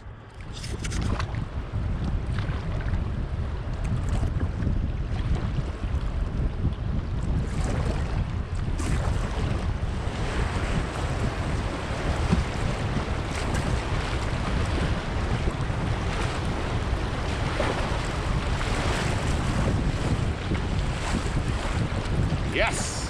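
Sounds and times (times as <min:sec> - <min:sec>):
wind buffeting microphone: 0:00.0 - 0:23.0
river rapid rushing and splashing: 0:22.5 - 0:23.0.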